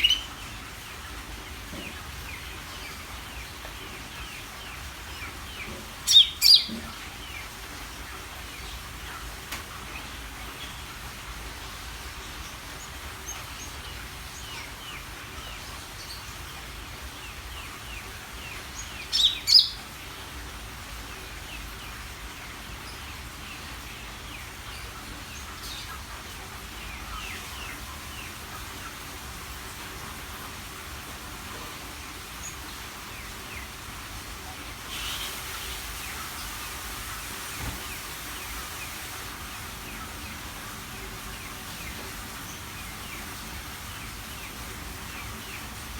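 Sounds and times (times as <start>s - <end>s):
loud sharp bird calls: 0.0s - 0.8s, 6.1s - 7.5s
steady hiss: 0.0s - 45.9s.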